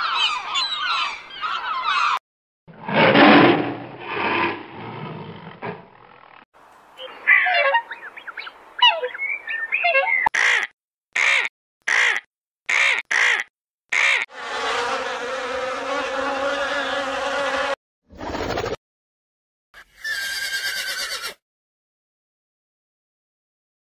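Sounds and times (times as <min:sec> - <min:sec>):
short bird calls: 0:07.0 - 0:10.6
swan calling: 0:07.0 - 0:10.6
honeybees buzzing: 0:14.3 - 0:17.8.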